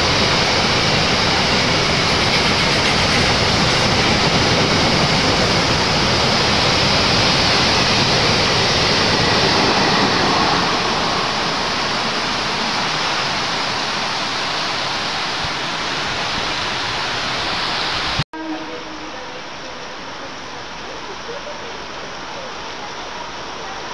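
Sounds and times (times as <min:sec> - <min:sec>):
heavy rain pouring: 0:00.0 - 0:18.2
freight train rumbling: 0:00.0 - 0:23.9.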